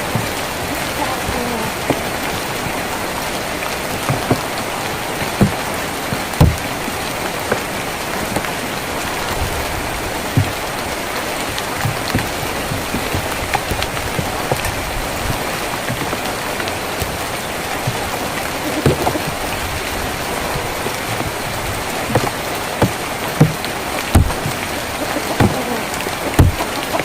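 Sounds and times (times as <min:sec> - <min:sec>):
rain on a tin roof: 0:00.0 - 0:27.0.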